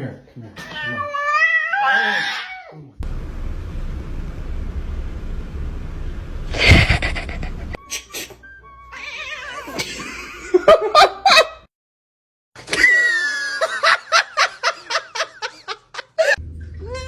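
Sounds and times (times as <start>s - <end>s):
person laughing: 6.5s - 7.8s, 9.7s - 11.6s.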